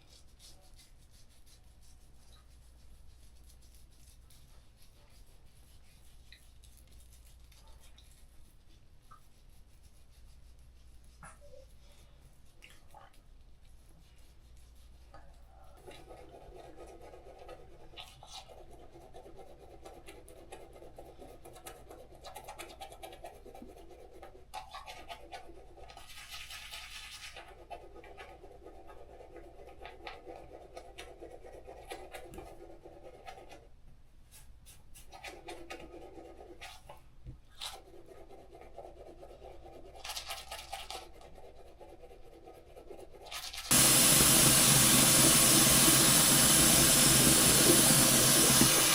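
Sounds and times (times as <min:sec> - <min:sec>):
scratching and rubbing: 0:00.0 - 0:11.7, 0:13.9 - 0:33.7, 0:34.3 - 0:48.9
loud rushing hiss: 0:43.7 - 0:48.9.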